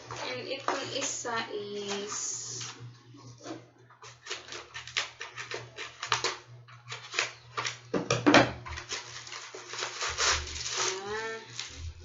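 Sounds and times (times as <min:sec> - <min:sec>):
packaging crinkling and rustling: 0:04.0 - 0:07.9, 0:08.6 - 0:12.0.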